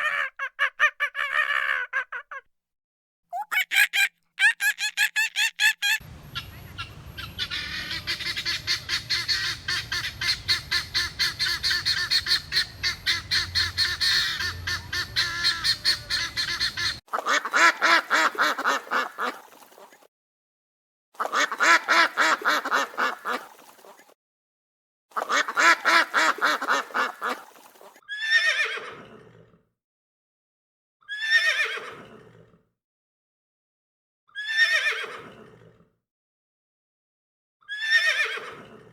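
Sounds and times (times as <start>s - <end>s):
long animal calls: 3.3s - 17.0s
fowl calling rapidly: 3.3s - 19.4s.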